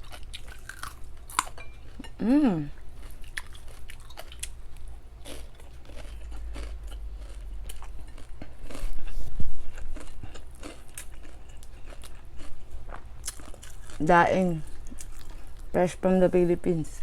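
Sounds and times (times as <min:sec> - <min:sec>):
chewing crisp fried fish: 0:00.0 - 0:02.1, 0:02.9 - 0:15.7.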